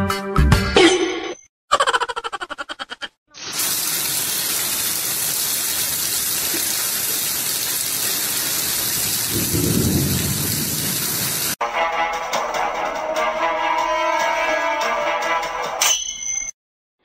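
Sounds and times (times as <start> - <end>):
heavy rain on water: 3.4 - 11.6.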